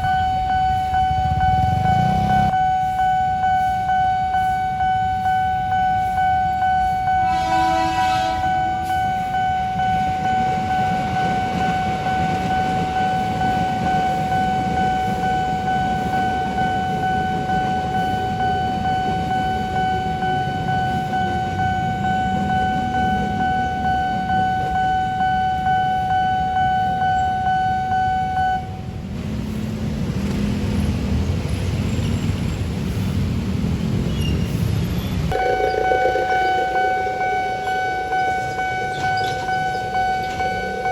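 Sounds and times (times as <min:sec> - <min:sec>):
level crossing warning bell: 0:00.0 - 0:29.0, 0:35.3 - 0:40.9
passing train rumble: 0:00.0 - 0:40.9
train horn blast: 0:07.1 - 0:09.0, 0:35.3 - 0:40.9.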